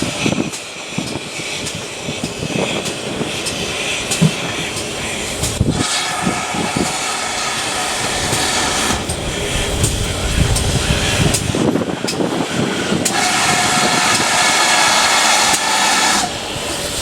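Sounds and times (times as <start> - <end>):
steam engine strokes: 0.0 - 17.0
steam train rushing: 0.0 - 17.0.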